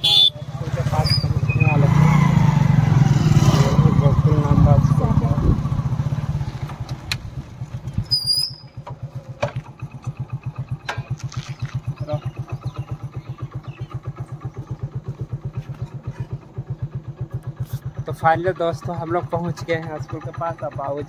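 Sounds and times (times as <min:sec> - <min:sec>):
motorcycle engine idling: 0:00.0 - 0:21.0
high squeal: 0:01.0 - 0:01.8, 0:08.1 - 0:08.8.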